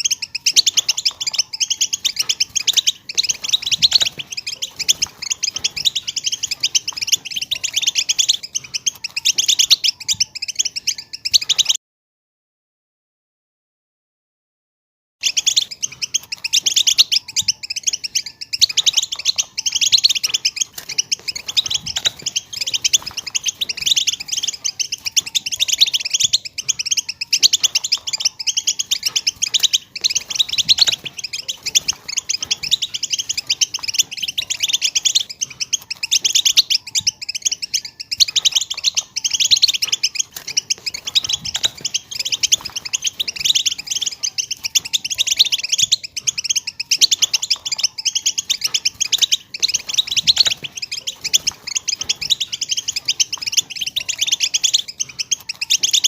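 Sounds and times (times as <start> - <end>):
finches twittering and singing: 0.0 - 11.8, 15.2 - 56.0.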